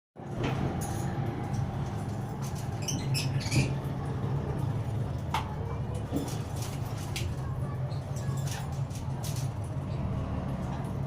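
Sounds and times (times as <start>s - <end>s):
parakeet squeaking and chirping: 2.4s - 4.0s.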